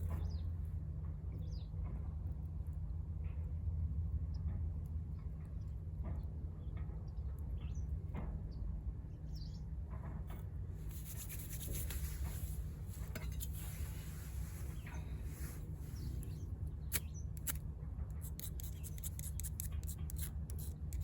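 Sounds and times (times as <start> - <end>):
low steady rumble: 0.0 - 21.0
fire hissing: 11.3 - 17.6.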